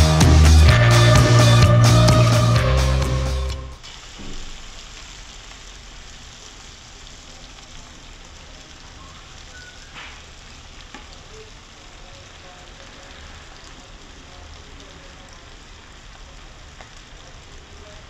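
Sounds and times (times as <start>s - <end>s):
background music: 0.0s - 3.8s
food sizzling in a wok: 2.8s - 18.0s.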